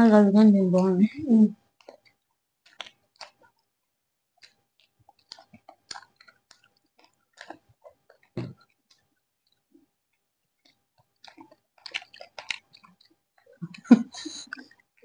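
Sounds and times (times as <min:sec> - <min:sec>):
crunching fried chicken: 0:01.7 - 0:13.6.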